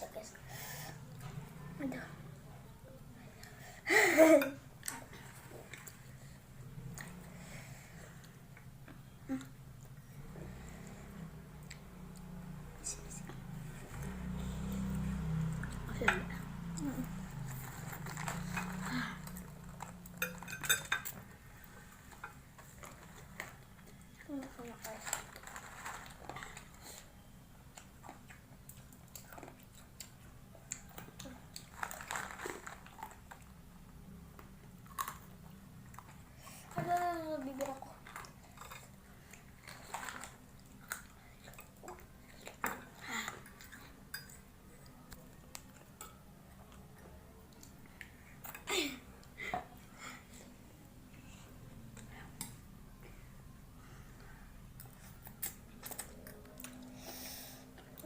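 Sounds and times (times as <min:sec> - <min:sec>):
utensils clinking on dishes: 0:17.8 - 0:21.2.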